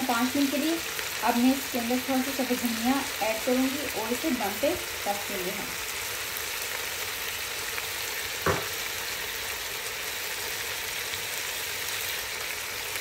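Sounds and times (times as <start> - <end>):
vegetables sizzling in oil: 0.0 - 13.0
knock: 8.4 - 8.7.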